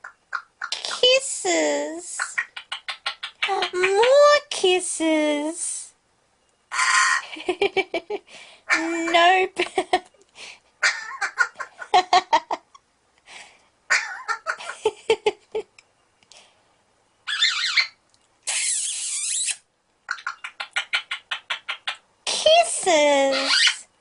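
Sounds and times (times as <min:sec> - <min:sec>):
parrot chattering: 0:00.0 - 0:00.9, 0:02.2 - 0:04.2, 0:06.7 - 0:07.2, 0:08.7 - 0:09.3, 0:10.8 - 0:11.8, 0:13.9 - 0:14.8, 0:17.3 - 0:22.6, 0:23.2 - 0:23.8
parrot screeching: 0:06.7 - 0:07.2, 0:13.9 - 0:14.5, 0:17.3 - 0:22.0, 0:23.3 - 0:23.8.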